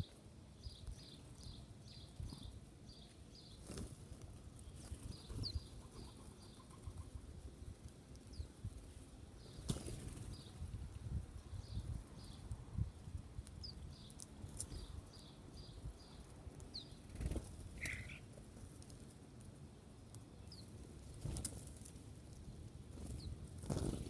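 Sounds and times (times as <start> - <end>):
birds chirping: 0.0 - 18.4, 20.2 - 21.4, 22.4 - 24.0
wings flapping: 3.6 - 4.2, 9.6 - 10.5, 17.0 - 18.2, 21.0 - 22.0, 22.9 - 24.0.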